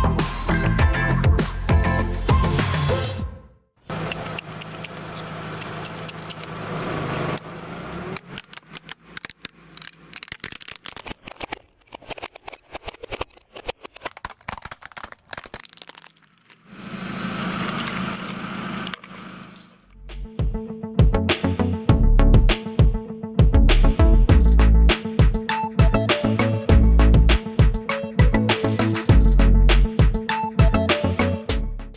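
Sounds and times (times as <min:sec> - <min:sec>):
crackling and snapping of crushing: 0:08.2 - 0:16.7.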